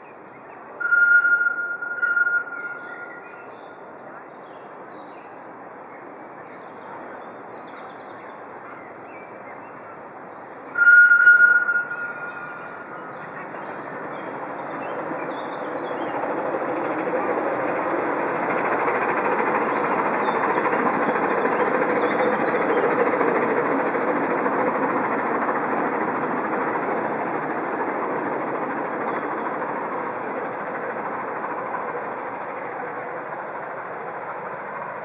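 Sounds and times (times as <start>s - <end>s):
miniature train wheels on rails: 10.8s - 35.0s.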